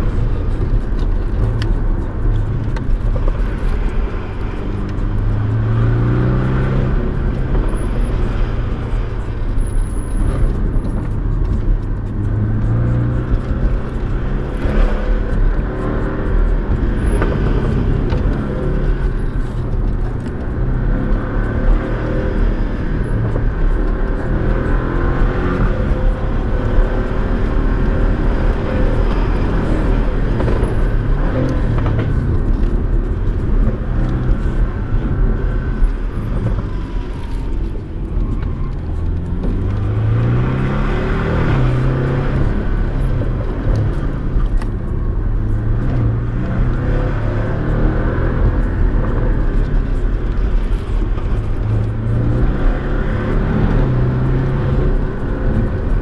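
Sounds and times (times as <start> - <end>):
car engine accelerating: 0.0 - 56.0
tyre and road noise: 0.0 - 56.0.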